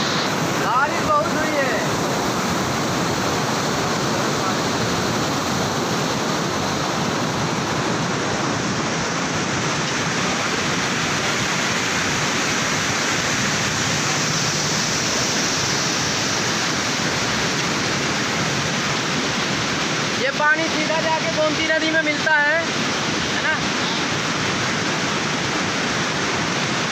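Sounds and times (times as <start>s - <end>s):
floodwater rushing in a drain: 0.0s - 26.9s.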